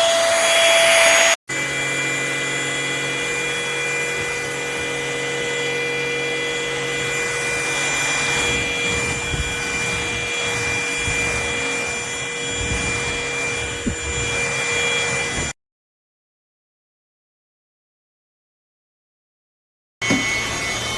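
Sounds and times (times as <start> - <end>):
vacuum cleaner running: 0.0 - 15.6, 20.0 - 20.9
vacuum head scrubbing floor: 0.0 - 15.6, 20.0 - 20.9.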